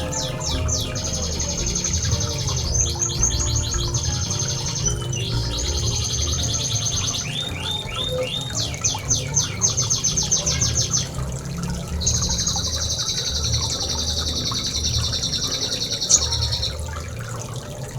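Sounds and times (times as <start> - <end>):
songbird trilling: 0.0 - 11.3.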